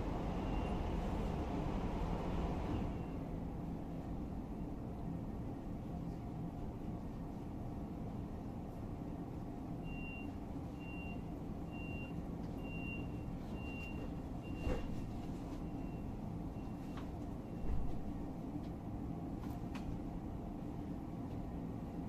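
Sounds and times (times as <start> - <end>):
electric train humming: 0.0 - 3.5.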